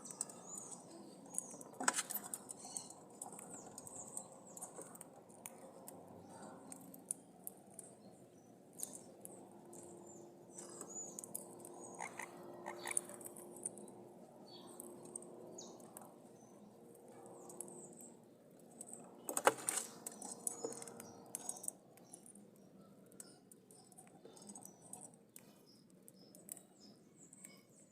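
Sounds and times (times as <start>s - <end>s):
parrots chirping: 11.9s - 13.2s.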